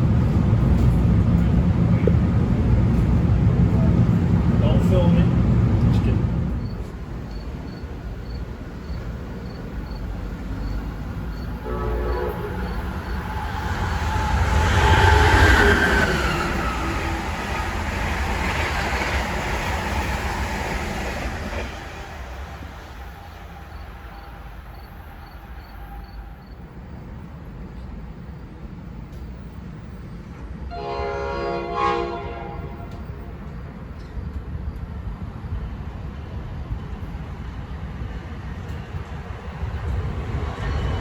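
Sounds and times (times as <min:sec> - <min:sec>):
train wheels on rails: 0:00.0 - 0:30.7, 0:32.5 - 0:41.0
train horn blast: 0:11.6 - 0:13.2, 0:30.7 - 0:33.3.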